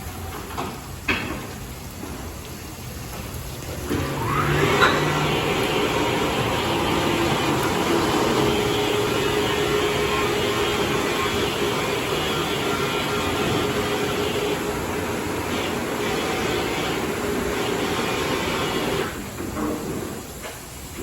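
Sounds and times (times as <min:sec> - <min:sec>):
car wash machinery whoosh: 0:03.1 - 0:21.0
motor whine: 0:03.8 - 0:19.2.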